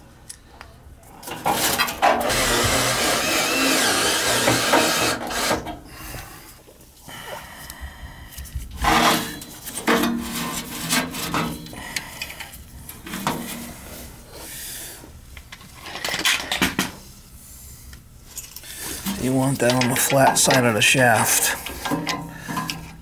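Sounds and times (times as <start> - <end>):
metal clanks and scraping: 1.2 - 2.8, 8.8 - 11.8, 18.4 - 23.0.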